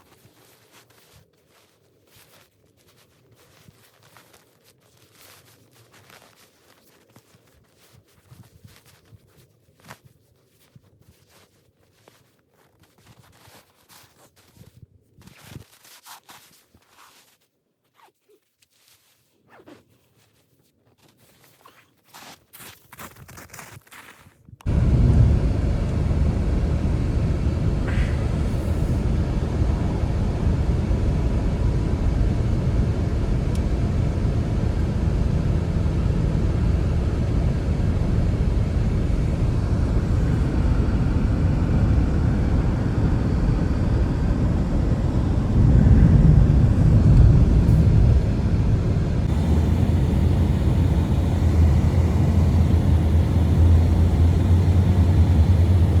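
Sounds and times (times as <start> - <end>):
steady low hum: 24.6 - 56.0
blizzard wind buffeting microphone: 24.7 - 56.0.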